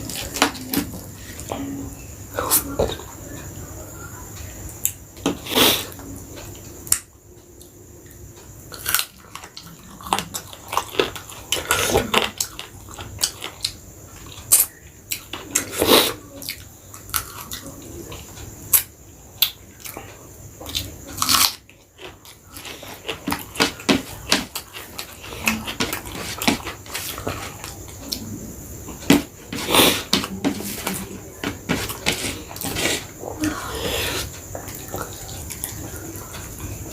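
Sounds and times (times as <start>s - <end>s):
person chewing food: 8.7s - 18.4s, 19.4s - 36.9s.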